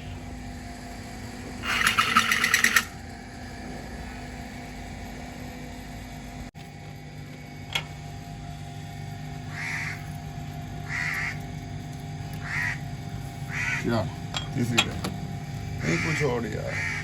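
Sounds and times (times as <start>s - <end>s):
crow cawing: 9.5s - 10.2s, 10.8s - 11.5s, 12.4s - 13.9s, 15.8s - 17.0s.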